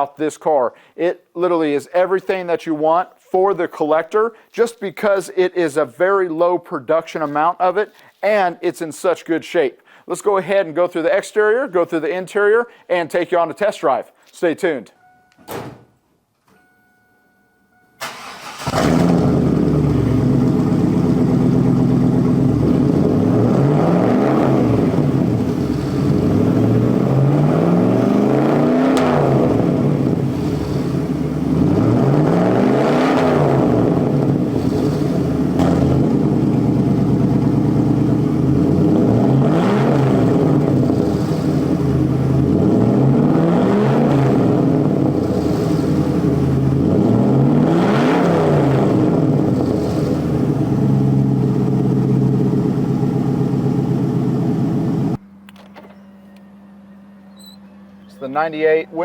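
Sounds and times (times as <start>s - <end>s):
car engine starting and revving: 18.0s - 55.2s.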